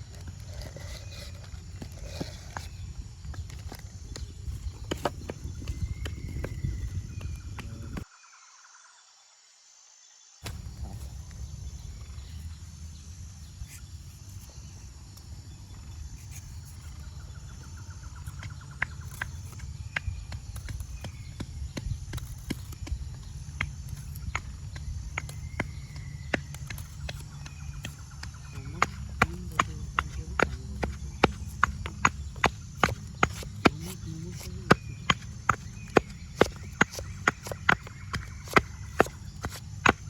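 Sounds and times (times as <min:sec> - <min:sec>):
bird chirps: 0:10.4 - 0:40.0
sharp knocks and taps: 0:18.2 - 0:40.0.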